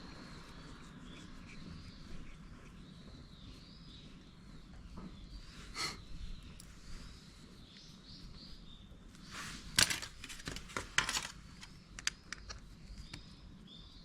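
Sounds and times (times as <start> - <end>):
birds chirping faintly: 0.0 - 14.0
rustling of hands working: 9.1 - 13.3
sharp light clicks and taps: 9.8 - 13.3.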